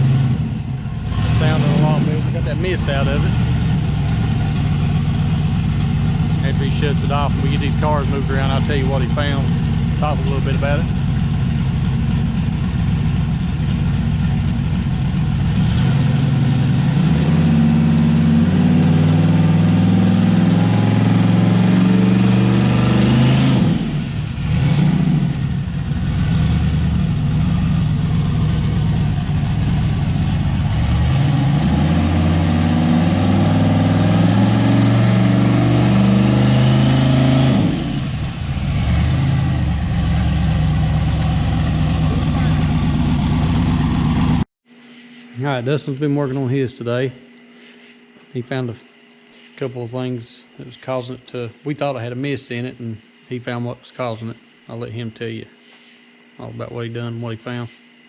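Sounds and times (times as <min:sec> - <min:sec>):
engine revving and idling: 0:00.0 - 0:44.5.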